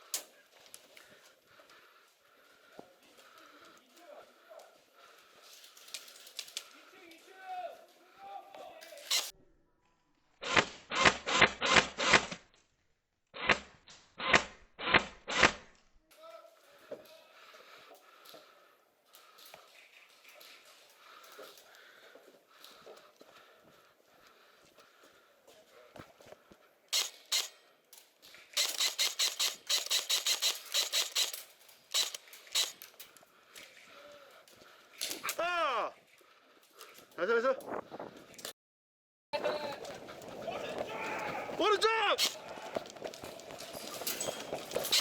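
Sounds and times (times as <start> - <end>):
airsoft gun firing bursts: 27.0 - 27.6, 28.6 - 32.8.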